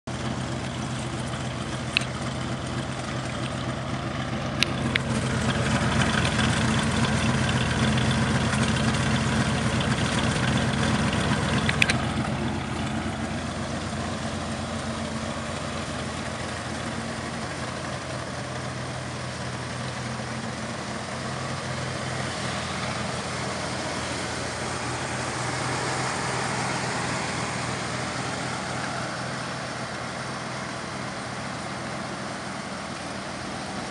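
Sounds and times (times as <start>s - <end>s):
car engine idling: 0.0s - 33.9s
sharp clicks: 11.5s - 12.1s.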